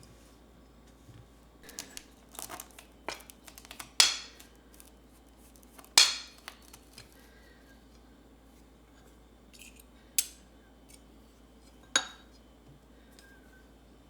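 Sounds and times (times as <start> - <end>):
paper or plastic rustling: 1.6 - 7.2.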